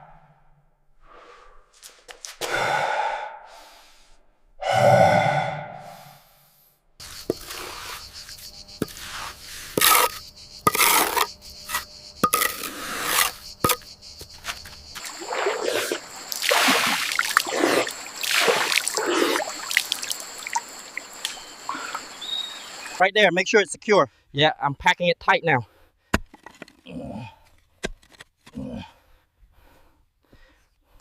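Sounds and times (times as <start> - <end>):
water splashing and sloshing: 14.4 - 22.2.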